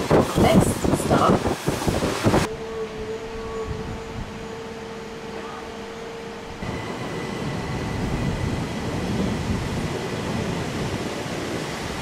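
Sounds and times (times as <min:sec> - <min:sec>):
faint steady whine: 0:02.4 - 0:12.0
train wheels rumbling: 0:06.5 - 0:12.0.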